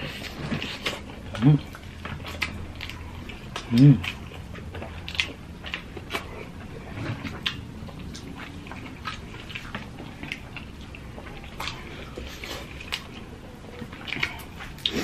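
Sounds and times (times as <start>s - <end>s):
lip smacks: 0.0s - 15.0s
wet chewing: 0.0s - 15.0s.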